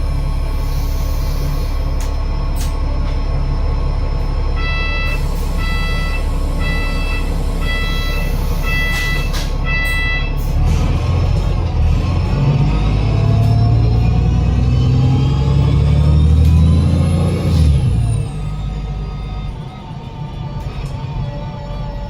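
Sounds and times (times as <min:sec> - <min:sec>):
bus diesel engine running: 0:00.0 - 0:22.0
electronic beeper: 0:04.6 - 0:10.4.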